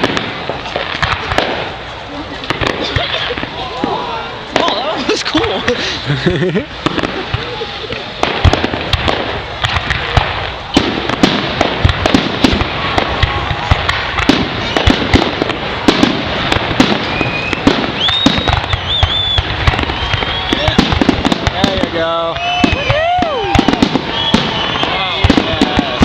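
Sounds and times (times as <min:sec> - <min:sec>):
fireworks bangs: 0:00.0 - 0:26.0
fireworks crackling: 0:00.0 - 0:26.0
rising whistling tones: 0:17.0 - 0:20.8, 0:22.3 - 0:25.2.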